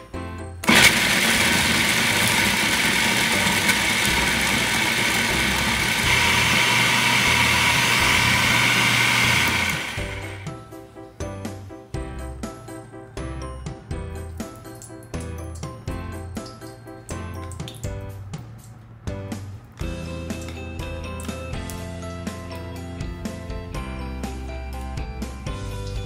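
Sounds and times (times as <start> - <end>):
food processor grinding nuts: 0.6 - 10.6.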